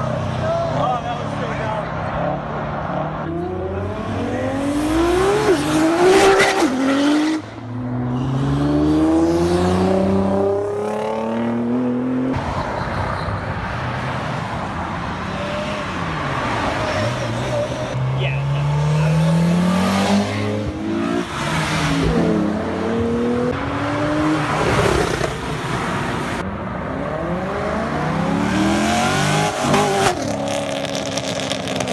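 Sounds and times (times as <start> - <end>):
car engines accelerating hard: 0.0 - 31.9
road noise: 0.0 - 31.9.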